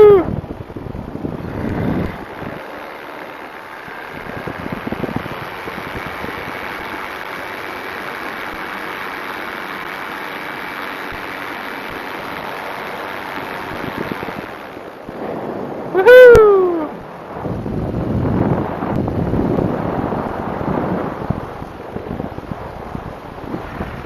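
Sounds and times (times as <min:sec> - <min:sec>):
wind rushing: 0:00.0 - 0:07.3, 0:13.5 - 0:24.0
faint steady whine: 0:00.0 - 0:24.0
plane engine noise: 0:00.0 - 0:24.0.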